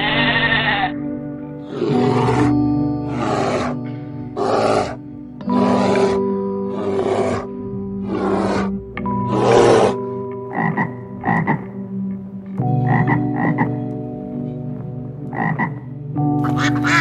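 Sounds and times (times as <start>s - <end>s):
bear growling: 1.6s - 10.7s
frog croaking: 9.4s - 11.8s, 12.7s - 13.8s, 15.3s - 17.0s.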